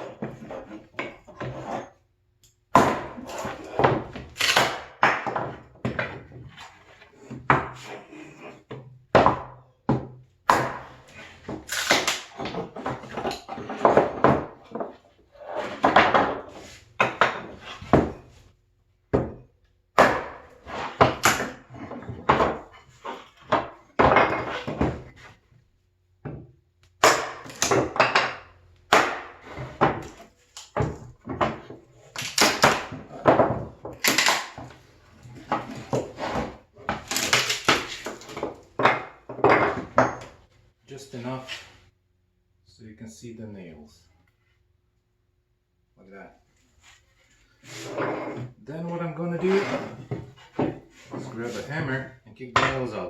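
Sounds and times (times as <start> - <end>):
hatchet chopping wood: 2.7 - 6.0, 9.1 - 12.7, 19.1 - 22.7, 26.3 - 34.8.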